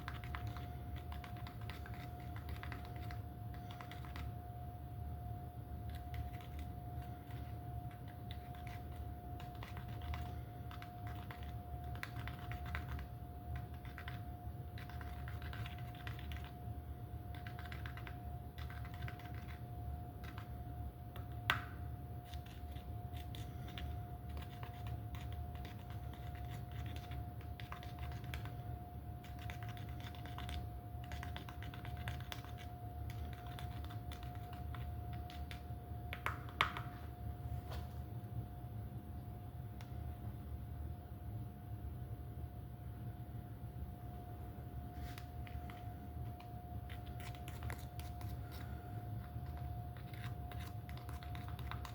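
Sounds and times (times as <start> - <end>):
light clicking and scratching: 0.0 - 4.3, 45.0 - 51.9
faint whine: 0.0 - 51.9.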